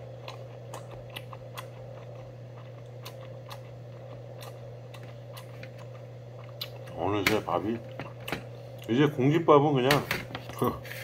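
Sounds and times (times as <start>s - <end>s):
chewing with mouth clicks: 0.0s - 7.0s.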